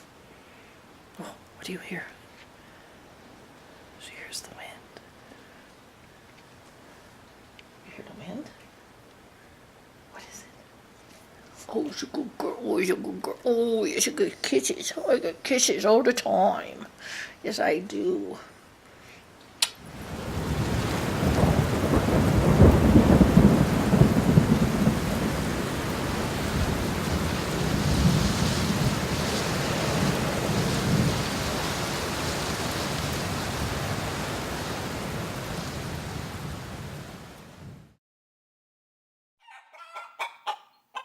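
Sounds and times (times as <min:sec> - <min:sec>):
strong wind gusting: 0:19.8 - 0:37.9.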